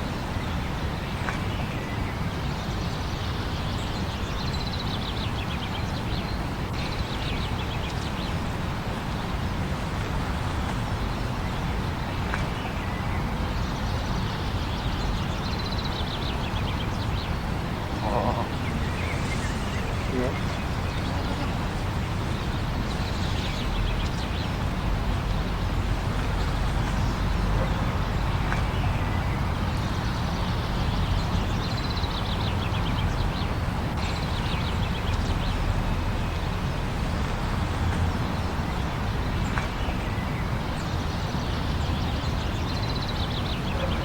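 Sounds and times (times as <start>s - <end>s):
blizzard wind rumbling: 16.4s - 39.1s.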